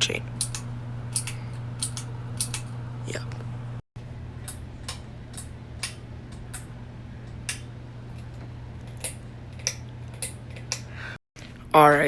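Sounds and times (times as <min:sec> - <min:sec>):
steady low hum: 0:00.0 - 0:12.0
pull-chain switch clicks: 0:00.4 - 0:02.7, 0:04.5 - 0:06.7.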